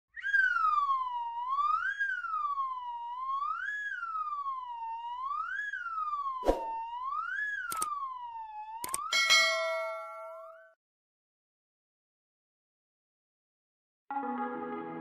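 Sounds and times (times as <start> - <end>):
electronic tone sliding up and down: 0.1 - 9.1
sharp click: 7.7 - 7.9, 8.8 - 9.1.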